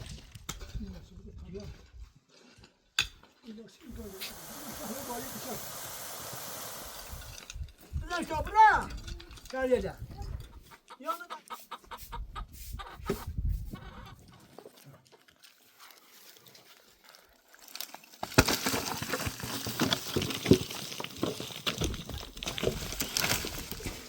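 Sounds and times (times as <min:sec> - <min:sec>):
clattering and rustling: 0:17.7 - 0:24.0.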